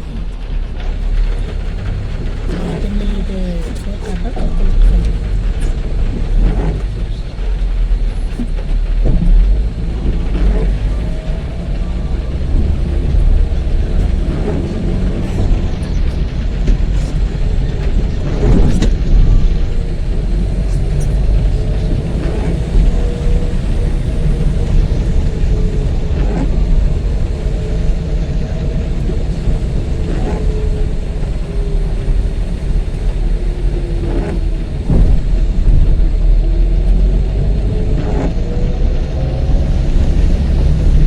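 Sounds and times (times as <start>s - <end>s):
car road and engine rumble: 0.0s - 41.0s.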